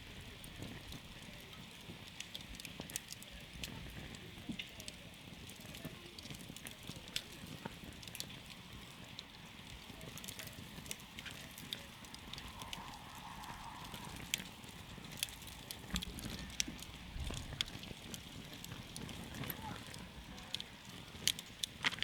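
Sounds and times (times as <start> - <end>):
campfire crackling: 0.0 - 22.0
rush of flame: 0.0 - 22.0
wood popping and snapping: 15.1 - 22.0.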